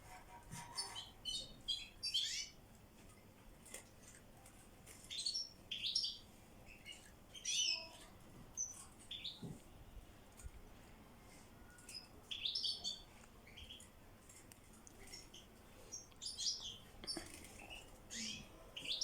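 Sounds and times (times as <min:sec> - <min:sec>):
goldfinches chirping and twittering: 0:00.6 - 0:02.6, 0:05.0 - 0:08.0, 0:08.6 - 0:09.5, 0:11.7 - 0:13.9, 0:15.0 - 0:19.0.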